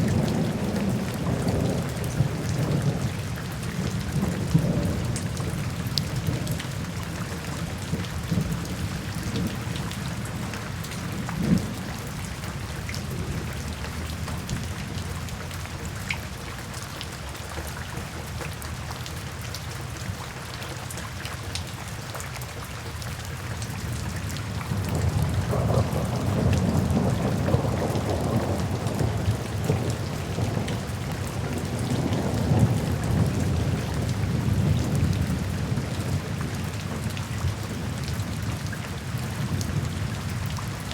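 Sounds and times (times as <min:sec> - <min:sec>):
steady rain falling: 0:00.0 - 0:40.9
rolling thunder: 0:24.6 - 0:37.0.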